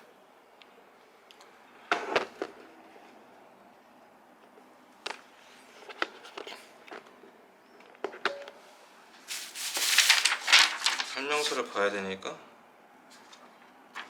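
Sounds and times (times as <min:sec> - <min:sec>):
rustling: 0:09.3 - 0:11.8.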